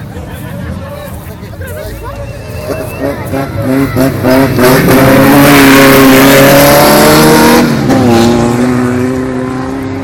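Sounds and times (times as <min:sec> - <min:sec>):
race car engine passing at high revs: 0:02.7 - 0:10.0.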